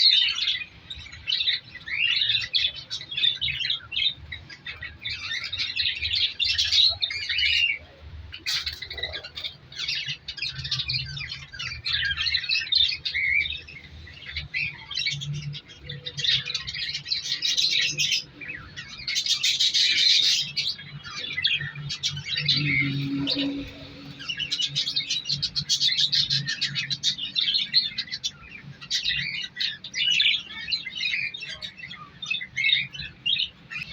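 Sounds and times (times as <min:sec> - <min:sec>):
budgerigars chirping and chattering: 0:00.0 - 0:33.9.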